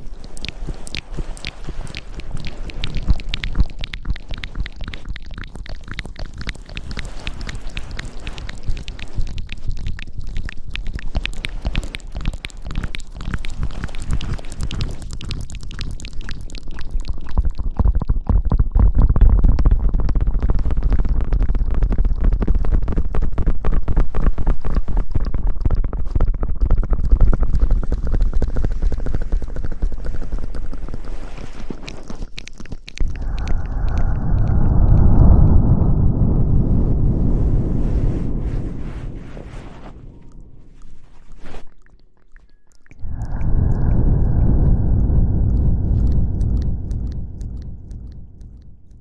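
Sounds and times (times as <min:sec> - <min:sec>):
hands rubbing on microphone: 0:00.0 - 0:05.1, 0:37.4 - 0:41.8
low rumble: 0:33.0 - 0:41.4, 0:43.0 - 0:49.0.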